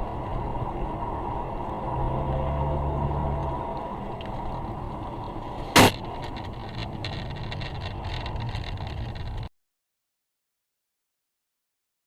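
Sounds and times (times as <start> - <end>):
car driving noise: 0.0 - 9.5
loud bang: 5.7 - 6.4.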